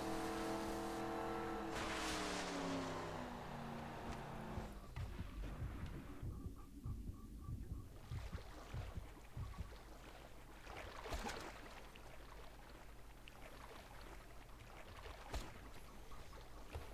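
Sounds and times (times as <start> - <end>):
rumbling wash of water: 0.0 - 6.2.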